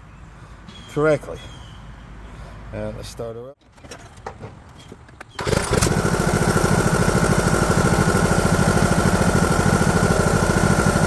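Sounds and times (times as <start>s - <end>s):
lawn mower engine running: 5.4s - 11.0s.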